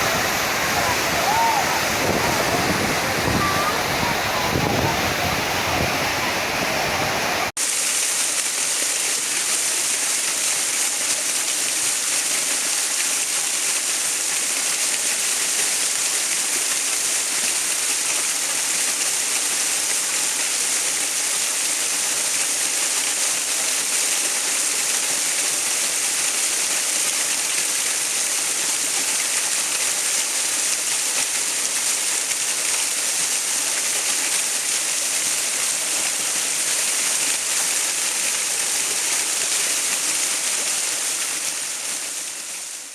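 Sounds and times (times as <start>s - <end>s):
deeper water sound: 0.0s - 12.3s
water rushing: 0.0s - 42.9s.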